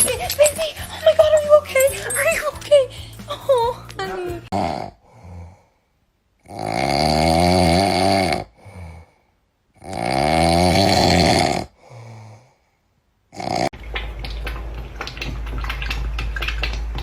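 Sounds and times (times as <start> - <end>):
loud snoring: 4.5 - 5.6, 6.4 - 9.2, 9.8 - 12.5, 13.3 - 13.7
quiet breath: 5.0 - 6.0, 8.5 - 9.5, 11.8 - 13.0.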